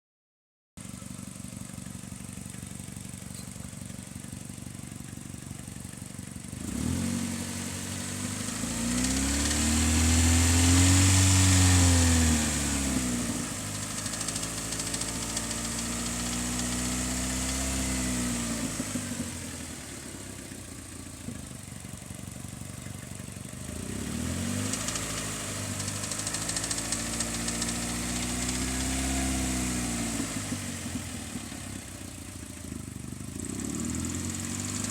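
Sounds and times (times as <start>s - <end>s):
car engine idling and revving: 0.8s - 34.9s
rattle: 1.0s - 6.4s, 13.7s - 17.6s, 24.5s - 29.0s.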